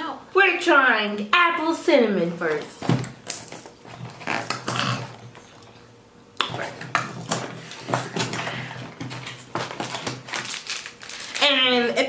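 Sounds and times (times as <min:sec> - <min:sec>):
plastic wrapper crinkling: 0:09.0 - 0:11.7.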